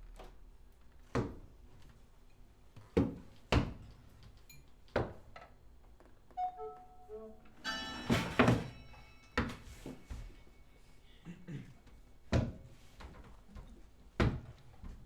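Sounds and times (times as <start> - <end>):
soft pitched notes: 6.4 - 8.0
sharp ringing thuds: 7.6 - 9.6.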